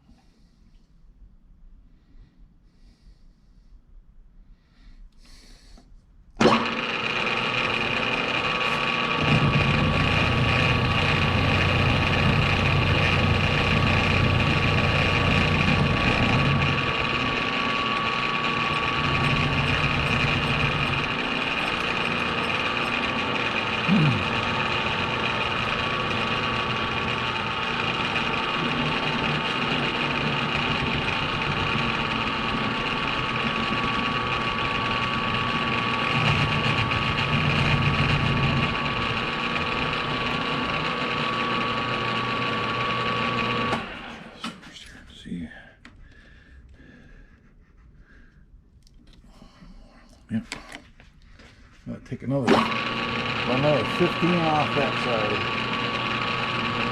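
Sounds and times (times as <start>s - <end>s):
metal lathe running with gear whine: 6.4s - 44.4s, 52.3s - 56.9s.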